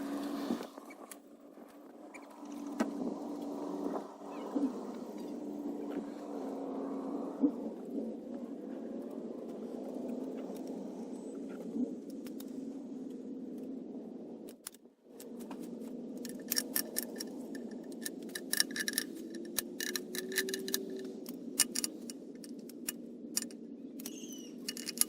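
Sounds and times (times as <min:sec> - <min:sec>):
steady low hum: 0:00.0 - 0:25.0
metallic clicks of hand tools: 0:16.2 - 0:25.0.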